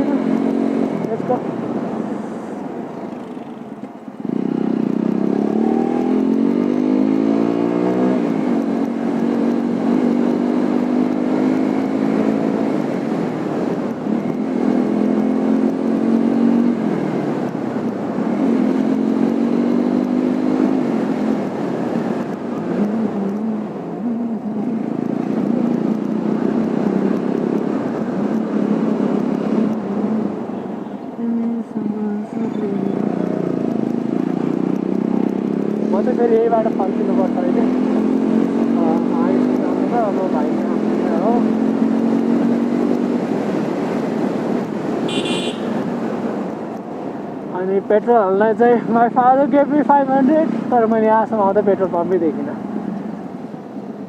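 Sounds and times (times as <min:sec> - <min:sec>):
motorcycle engine accelerating: 0:00.0 - 0:01.4, 0:04.2 - 0:30.5, 0:32.4 - 0:46.6.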